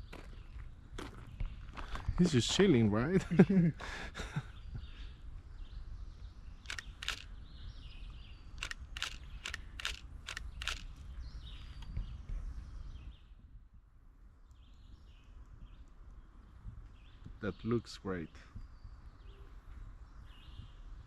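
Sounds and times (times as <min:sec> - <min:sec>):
birds calling: 0:00.0 - 0:13.3
wind rumble on microphone: 0:00.0 - 0:17.7, 0:18.4 - 0:21.0
sharp high clicks: 0:06.6 - 0:07.3, 0:08.6 - 0:10.9.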